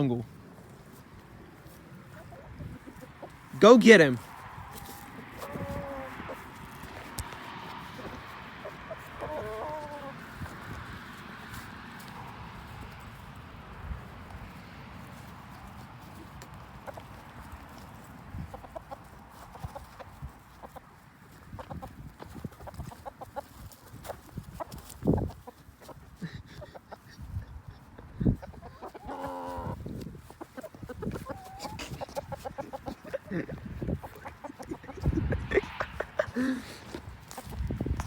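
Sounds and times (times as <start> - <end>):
chickens clucking: 0.1 - 38.0
chicken squawk: 2.1 - 3.5, 4.7 - 10.6, 28.2 - 36.8.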